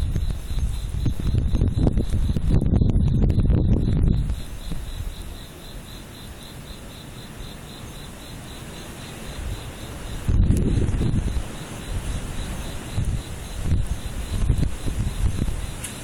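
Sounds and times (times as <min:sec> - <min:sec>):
wind gusts buffeting microphone: 0:00.0 - 0:05.5, 0:08.8 - 0:16.0
insect chirping: 0:00.0 - 0:16.0.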